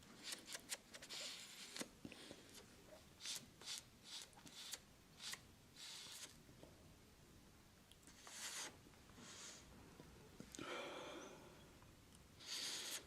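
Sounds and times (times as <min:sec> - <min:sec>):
short rustling hisses: 0:08.2 - 0:09.7.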